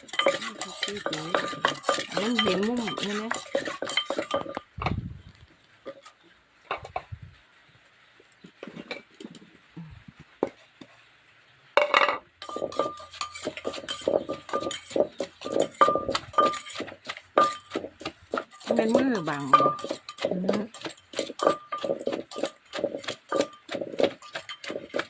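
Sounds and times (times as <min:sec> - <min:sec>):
pestle knocking in mortar: 0:00.0 - 0:05.0, 0:11.9 - 0:25.0.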